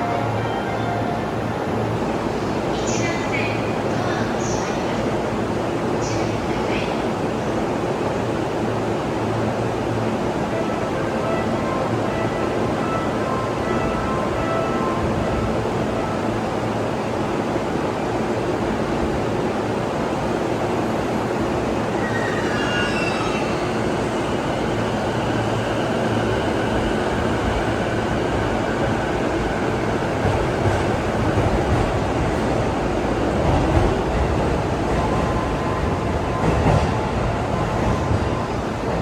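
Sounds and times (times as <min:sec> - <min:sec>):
electric train rumbling: 0:00.0 - 0:39.0.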